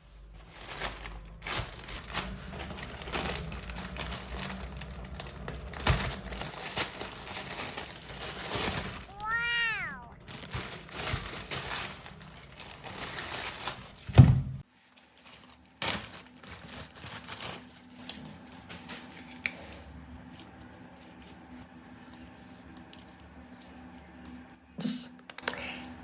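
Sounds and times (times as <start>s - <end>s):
crinkling handling noise: 0.4s - 19.4s.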